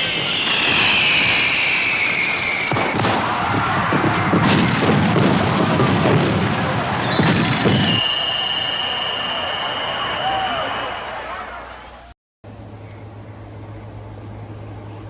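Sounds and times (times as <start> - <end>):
firework whistle falling in pitch: 0.0 - 5.2, 6.9 - 12.1
firework bang: 0.0 - 12.0
firework crackling bursts: 0.0 - 12.1.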